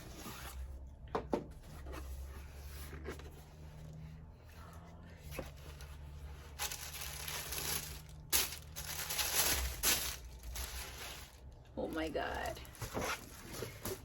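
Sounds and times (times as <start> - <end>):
paper packaging crinkling: 5.4 - 14.0.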